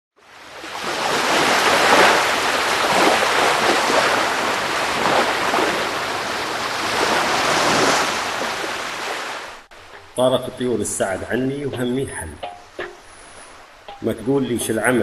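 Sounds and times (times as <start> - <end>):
sea waves rushing: 0.2 - 15.0.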